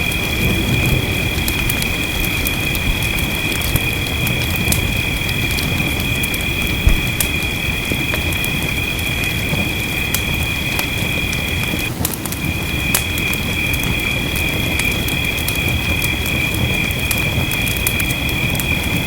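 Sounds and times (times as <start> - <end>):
gentle rain: 0.0 - 19.0
wood fire crackling: 0.0 - 19.0.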